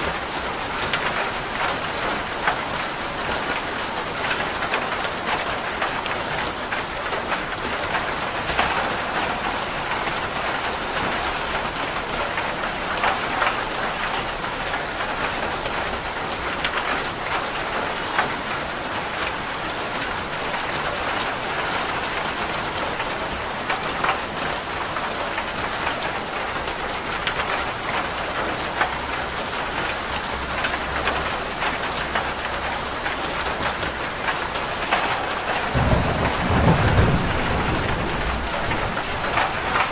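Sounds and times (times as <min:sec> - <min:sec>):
rain on a roof: 0:00.0 - 0:39.9
thunder rumble: 0:34.4 - 0:39.9.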